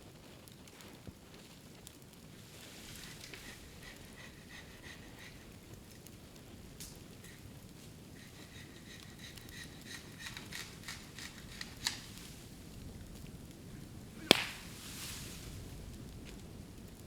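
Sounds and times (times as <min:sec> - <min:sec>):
bamboo fire crackling and popping: 0:00.0 - 0:17.0
bamboo bursting with loud bang: 0:14.2 - 0:15.4
brief hiss: 0:14.2 - 0:15.6.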